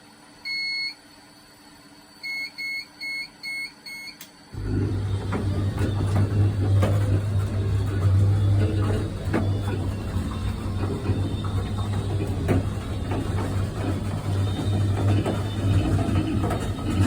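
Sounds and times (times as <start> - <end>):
motor humming with rattling clicks: 4.2 - 17.0.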